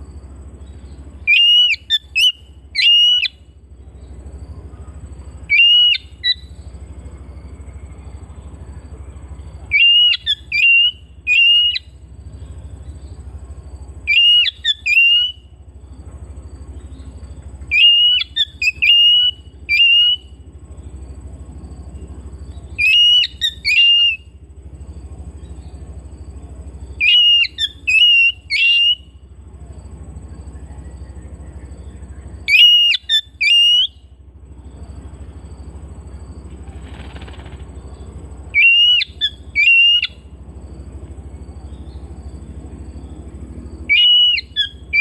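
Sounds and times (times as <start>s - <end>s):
steady low hum: 0.0s - 45.0s
bird singing whistled phrases: 0.6s - 4.1s, 5.4s - 6.8s, 9.7s - 12.1s, 14.0s - 15.5s, 16.8s - 20.4s, 22.5s - 24.4s, 26.9s - 29.2s, 30.4s - 34.1s, 38.5s - 40.2s, 43.9s - 45.0s.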